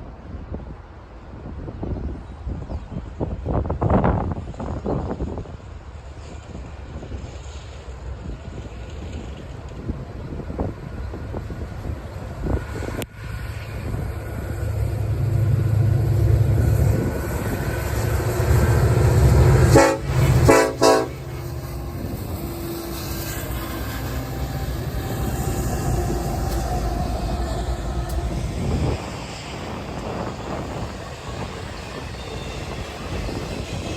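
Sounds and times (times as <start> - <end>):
diesel locomotive engines: 0.0 - 33.9
train cars rumbling by: 0.0 - 33.9
train horn blasts: 18.4 - 29.0.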